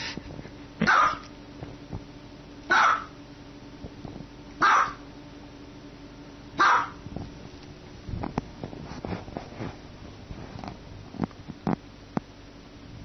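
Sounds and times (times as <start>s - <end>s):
small dog barking: 0.8s - 1.3s, 2.7s - 3.2s, 4.6s - 5.1s, 6.6s - 7.0s.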